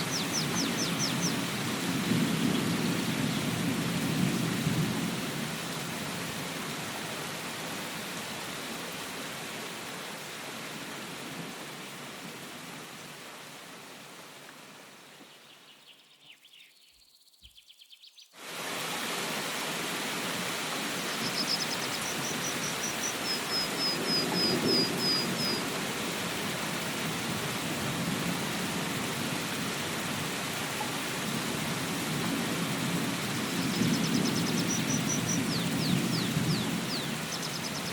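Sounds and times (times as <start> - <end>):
bird chirping: 0.0 - 1.4, 15.3 - 18.4, 21.0 - 25.6, 33.6 - 37.9
steady rain falling: 0.0 - 15.9, 18.4 - 37.9.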